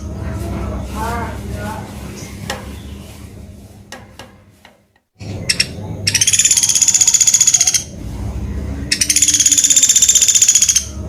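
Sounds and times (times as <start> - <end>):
songbird high rapid trill: 5.3 - 7.9, 8.9 - 11.0.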